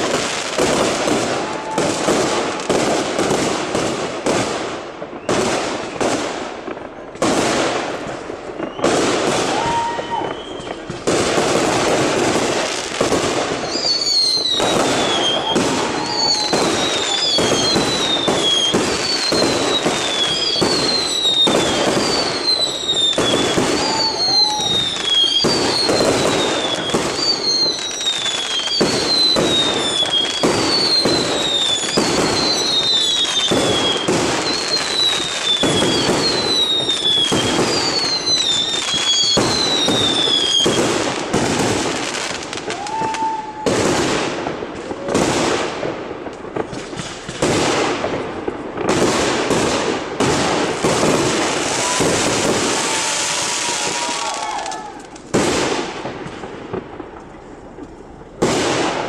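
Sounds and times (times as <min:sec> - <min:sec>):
falling firework whistle: 0:00.0 - 0:02.8, 0:05.1 - 0:06.2, 0:08.5 - 0:44.2, 0:50.8 - 0:55.9
fireworks bangs and crackling: 0:00.0 - 0:59.0.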